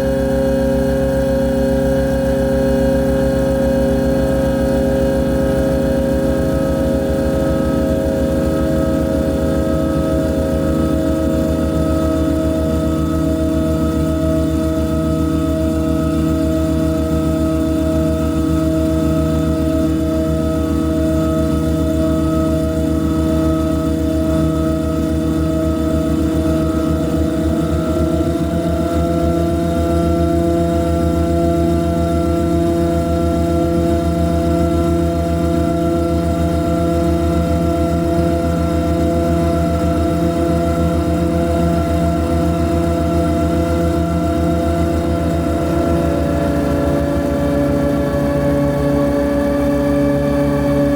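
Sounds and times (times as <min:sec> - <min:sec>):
electronic drone with low throb: 0:00.0 - 0:50.9.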